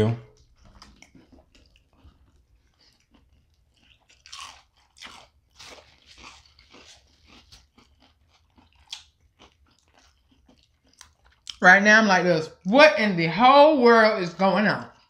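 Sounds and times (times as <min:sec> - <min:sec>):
crunching and chewing food: 0:00.3 - 0:11.6.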